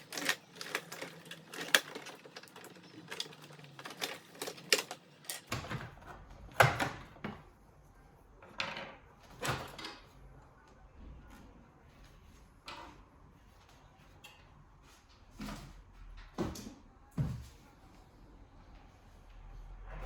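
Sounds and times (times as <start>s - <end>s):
tools clicking on metal parts: 0.0s - 5.5s.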